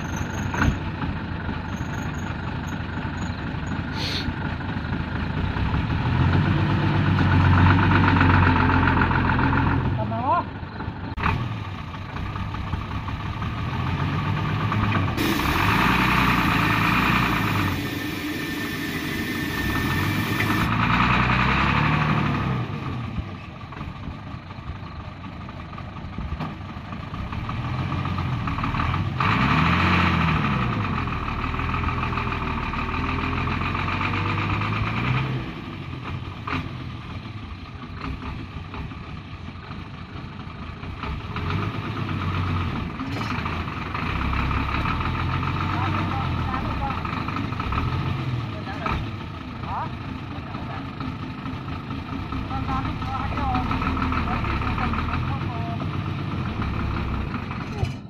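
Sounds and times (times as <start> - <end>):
truck diesel engine revving: 2.4 - 24.5, 25.2 - 57.8
loud hiss: 4.0 - 4.3, 15.2 - 20.7.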